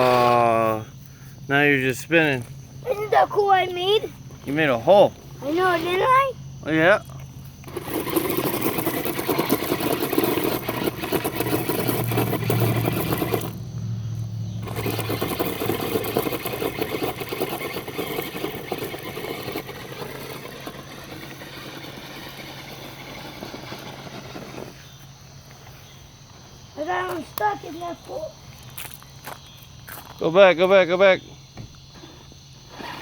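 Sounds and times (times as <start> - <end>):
toy truck electric motor whining: 0.0 - 0.8, 5.3 - 6.8, 7.5 - 13.7, 14.6 - 25.1, 32.0 - 33.0
gravel crackling and spraying: 7.8 - 13.8.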